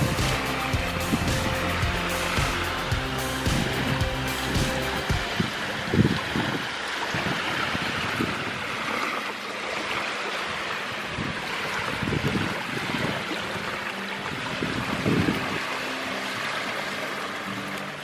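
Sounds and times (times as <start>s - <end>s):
surf rushing: 0.0s - 18.0s
wind: 0.0s - 18.0s.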